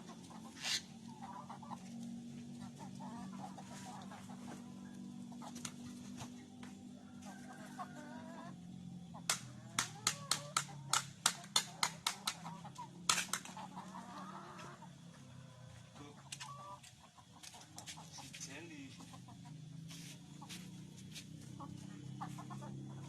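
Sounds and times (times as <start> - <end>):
chickens clucking: 0.0 - 23.0
sharp clicks: 9.3 - 12.5.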